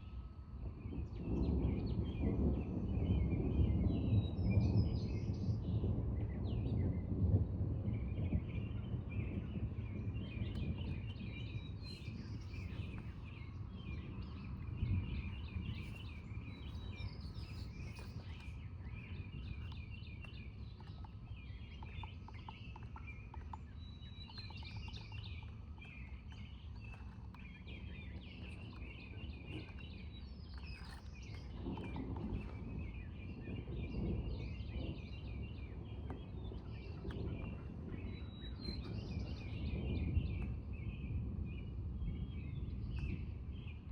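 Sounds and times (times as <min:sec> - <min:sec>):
low background rumble: 0:04.2 - 0:43.8
birds chirping and singing: 0:08.9 - 0:41.2.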